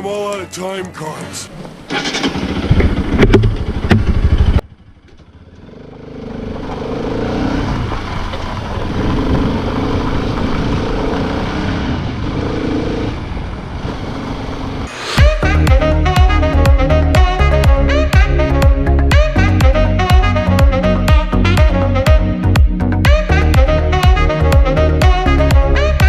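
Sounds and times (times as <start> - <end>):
motorcycle running: 1.5 - 26.0.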